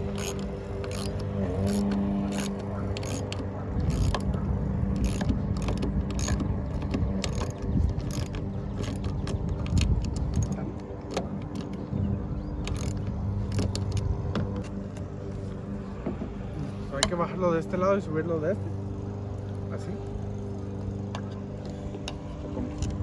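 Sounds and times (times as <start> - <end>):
ratchet wrench clicking: 0.0 - 4.2, 5.0 - 9.1, 12.7 - 13.6
steady low hum: 0.0 - 23.0.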